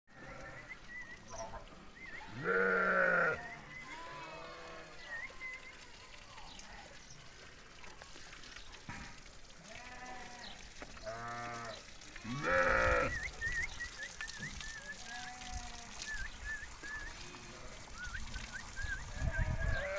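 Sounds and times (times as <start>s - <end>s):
sheep bleating: 0.1s - 0.7s, 2.3s - 5.0s, 9.7s - 13.2s, 19.2s - 19.9s.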